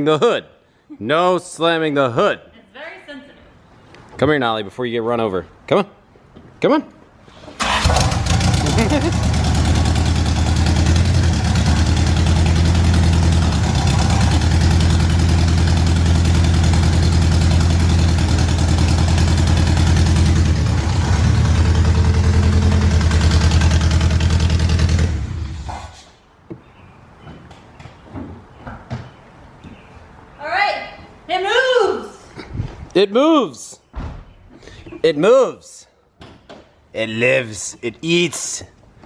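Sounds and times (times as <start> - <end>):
car engine running: 7.9 - 25.7.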